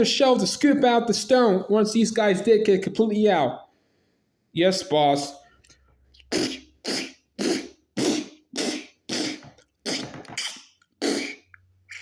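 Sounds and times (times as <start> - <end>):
person making mouth sound effects: 6.2 - 12.0.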